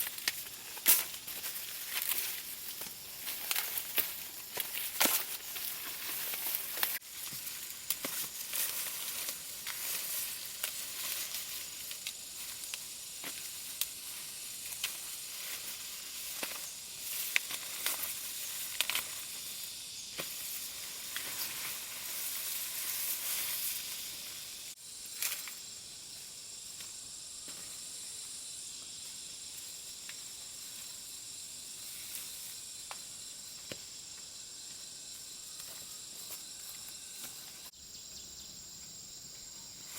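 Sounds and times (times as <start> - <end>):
dry plants crackling and rustling: 0.0 - 25.6
insects chirring: 0.0 - 39.9.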